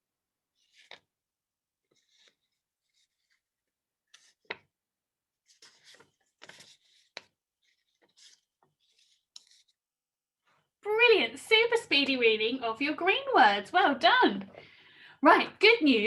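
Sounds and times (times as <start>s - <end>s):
paper cards rustling: 0.5s - 1.2s, 1.8s - 4.7s, 5.4s - 9.8s.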